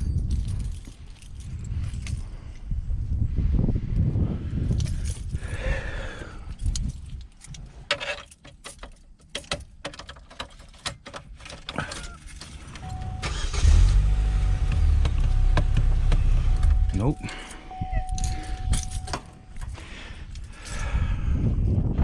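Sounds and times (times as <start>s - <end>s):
keys jangling and clicking: 0.0s - 2.7s, 4.6s - 13.5s, 16.6s - 21.0s
car engine starting and running: 11.9s - 19.7s.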